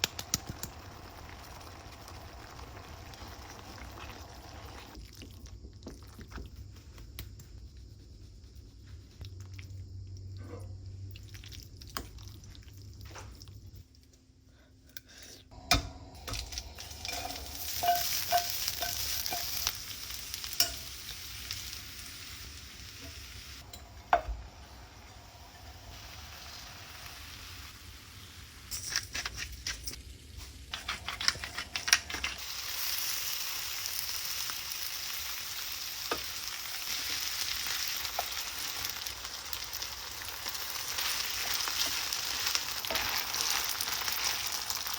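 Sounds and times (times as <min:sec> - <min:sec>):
food sizzling in a pan: 0:00.0 - 0:05.0, 0:15.5 - 0:44.9.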